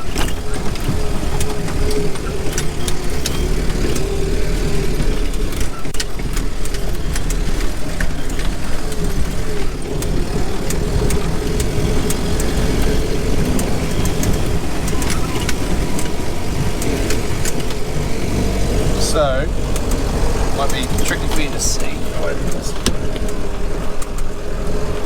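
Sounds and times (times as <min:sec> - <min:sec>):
sharp clicks: 0:00.0 - 0:25.0
vehicle engine rumble: 0:00.0 - 0:25.0.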